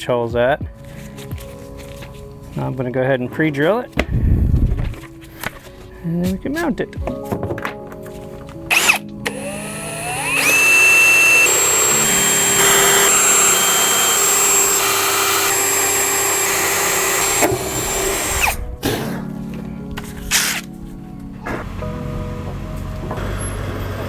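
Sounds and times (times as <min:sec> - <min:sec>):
power drill running: 0:08.7 - 0:18.6.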